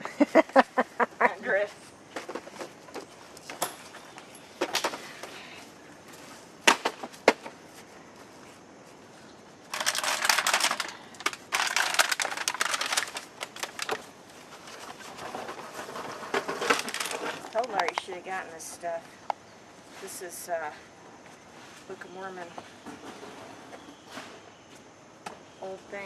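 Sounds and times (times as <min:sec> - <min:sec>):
plastic crinkling and rustling: 0:09.7 - 0:18.1.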